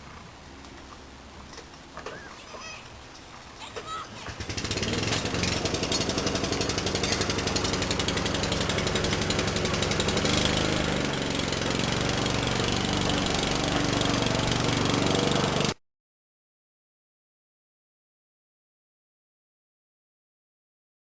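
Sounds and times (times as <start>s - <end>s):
small motor chugging: 3.6s - 15.8s.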